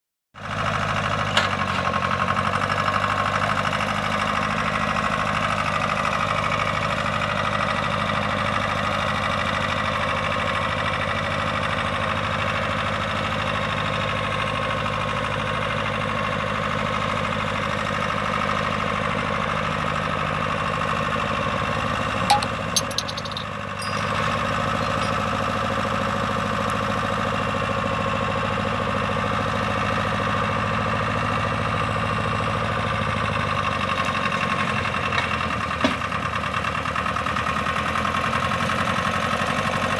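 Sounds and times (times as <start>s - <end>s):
tractor engine running: 15.0s - 39.9s
sharp clicks: 22.3s - 23.5s.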